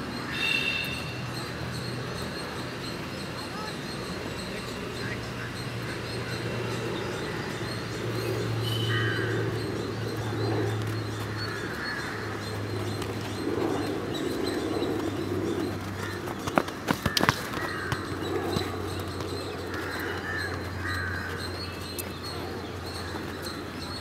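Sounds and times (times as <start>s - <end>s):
birds calling: 0.0s - 24.0s
steady low hum: 1.4s - 24.0s
footballs being kicked: 16.2s - 20.4s.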